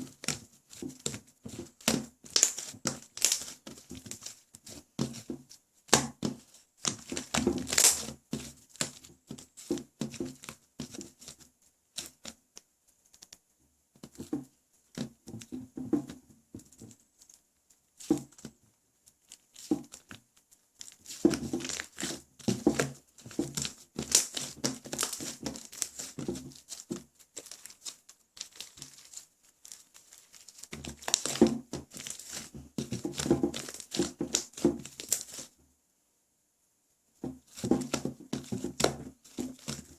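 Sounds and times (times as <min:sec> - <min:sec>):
slime crackling and clicking: 0:02.3 - 0:04.3, 0:06.8 - 0:08.1, 0:23.6 - 0:35.4.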